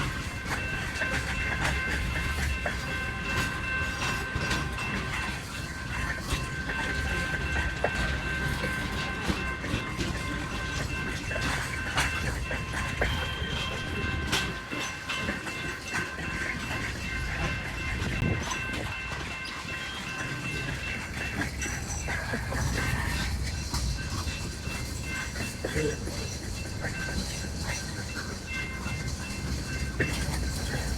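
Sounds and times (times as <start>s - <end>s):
low rumble of train cars: 0.0s - 30.9s
train wheels clicking on rail joints: 0.0s - 30.9s.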